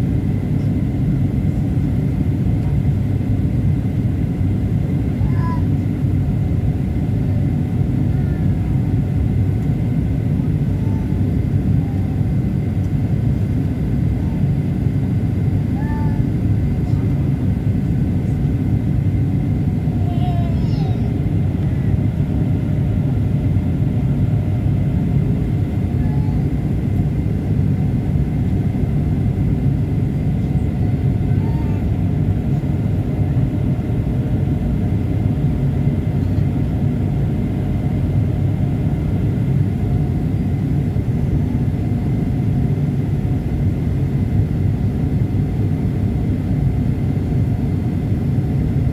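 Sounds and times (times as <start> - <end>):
airliner engine rumble in cabin: 0.0 - 48.9.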